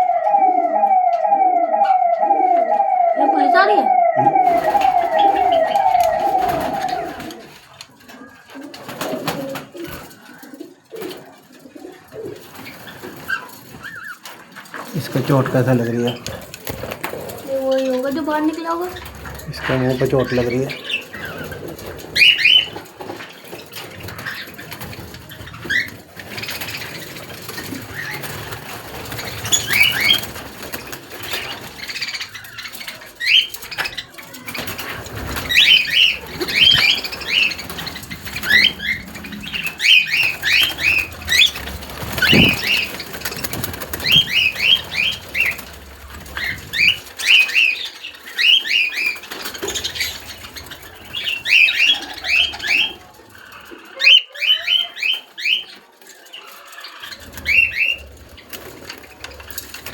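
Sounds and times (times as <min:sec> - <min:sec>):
cage birds chirping: 0:00.0 - 0:59.9.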